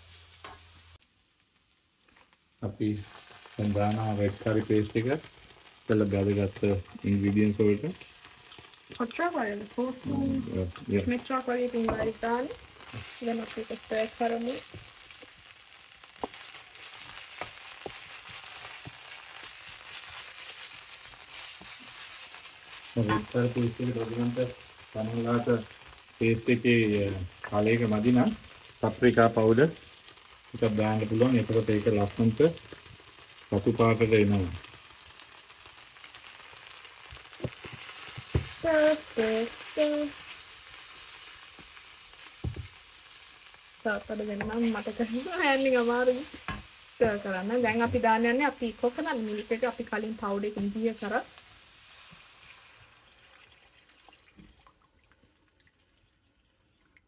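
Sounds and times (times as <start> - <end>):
food sizzling in a wok: 0.0 - 54.5
wooden spoon stirring and scraping: 10.4 - 24.2, 37.2 - 40.5, 43.9 - 48.3
spoon knocking on pan: 11.8 - 12.2, 42.4 - 42.7.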